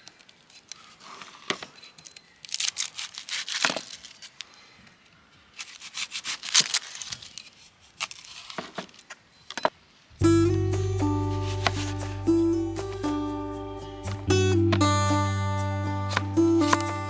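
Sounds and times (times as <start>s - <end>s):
knife cutting vegetables on board: 11.3s - 12.1s, 16.1s - 17.0s.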